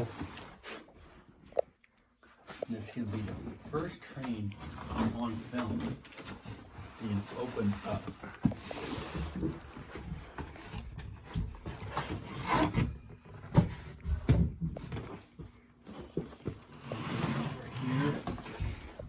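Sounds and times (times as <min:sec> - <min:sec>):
cardboard packaging rubbing: 0:03.1 - 0:13.0.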